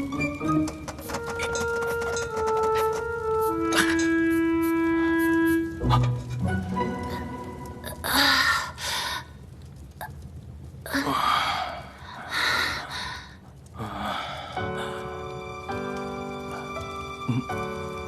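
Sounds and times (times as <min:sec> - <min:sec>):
music: 0:00.0 - 0:08.5, 0:13.8 - 0:18.0
soft sad background score: 0:00.0 - 0:18.0.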